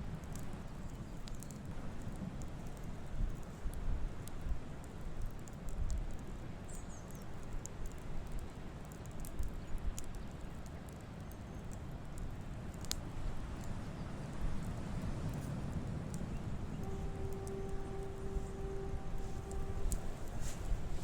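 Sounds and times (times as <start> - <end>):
fire low rumble: 0.0 - 21.0
wood fire crackling: 0.0 - 21.0.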